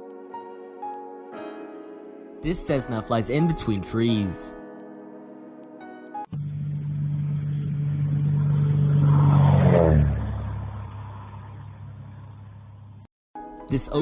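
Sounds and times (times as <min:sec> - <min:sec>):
light aircraft engine passing: 0:06.4 - 0:12.8.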